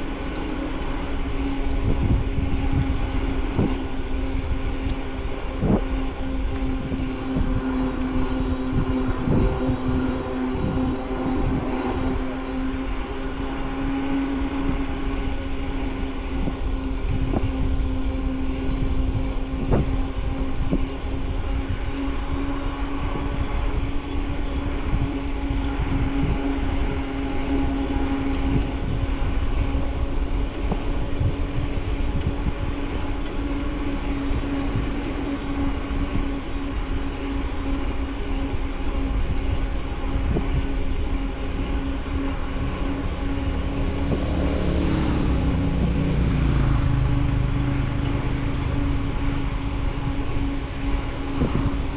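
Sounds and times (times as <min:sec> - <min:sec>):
steady hum: 0:00.0 - 0:51.9
bicycle tyres rolling: 0:18.6 - 0:51.9.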